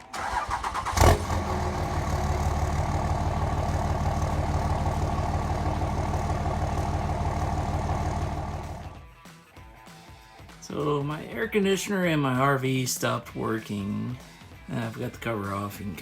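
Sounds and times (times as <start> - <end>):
large engine idling: 0.9 - 9.0.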